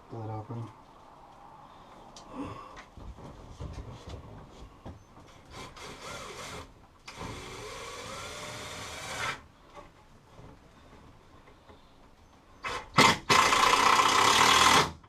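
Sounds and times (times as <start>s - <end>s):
power tool working on wood: 5.5s - 9.4s, 12.6s - 15.0s.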